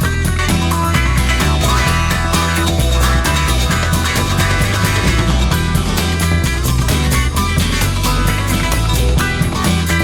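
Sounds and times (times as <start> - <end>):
psychedelic rock instrumental: 0.0 - 10.0.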